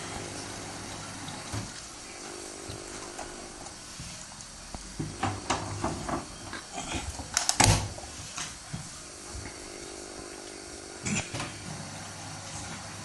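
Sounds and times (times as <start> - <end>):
washing machine motor hum: 0.0 - 13.0
washing machine knocks: 5.0 - 6.4.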